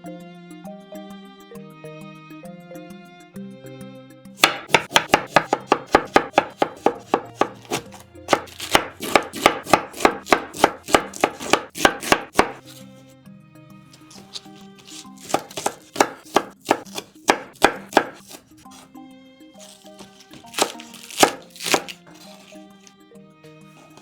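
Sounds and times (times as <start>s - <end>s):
soft instrumental music: 0.0s - 24.0s
knife chopping on cutting board: 4.4s - 12.8s, 14.0s - 18.9s, 19.6s - 22.9s, 23.8s - 24.0s.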